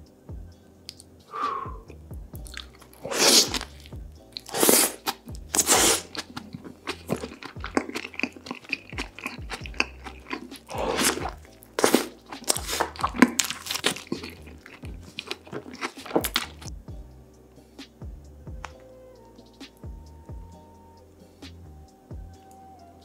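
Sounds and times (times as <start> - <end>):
background music: 0.0 - 23.0
crunching bites and chewing: 2.4 - 16.7.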